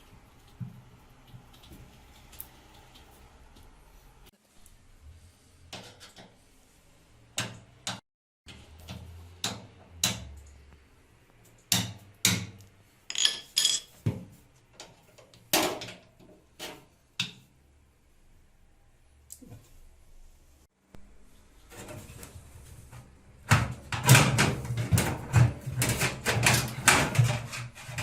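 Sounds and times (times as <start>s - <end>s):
metal tools knocking and clinking: 13.1s - 14.0s.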